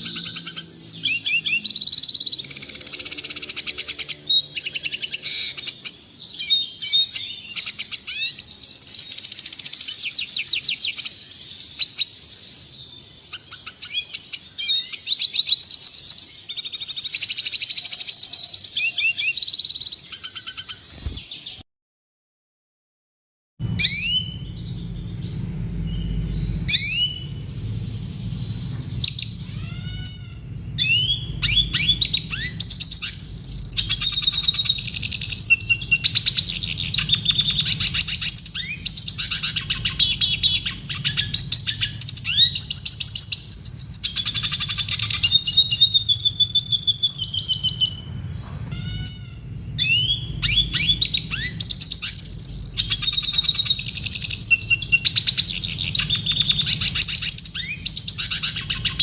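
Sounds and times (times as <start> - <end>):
bird twittering song: 0.0 - 21.6, 23.6 - 59.0
faint low hum: 23.6 - 59.0.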